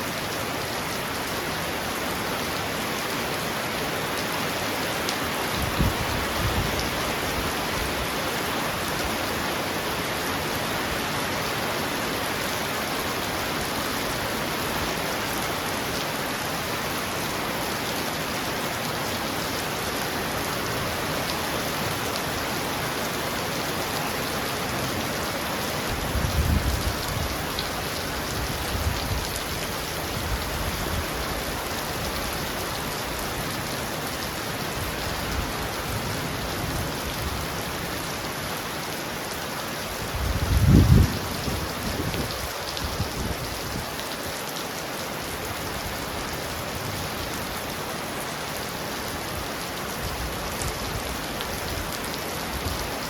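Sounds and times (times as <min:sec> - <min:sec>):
heavy rain on a roof: 0:00.0 - 0:53.0.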